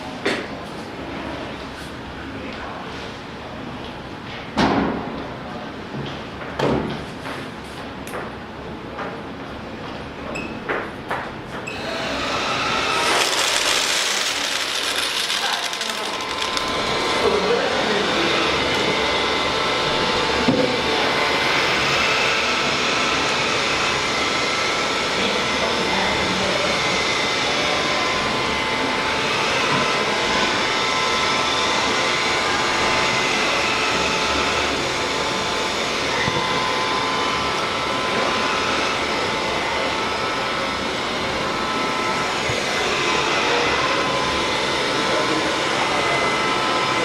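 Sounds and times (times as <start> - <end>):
vacuum cleaner running: 11.6 - 47.0.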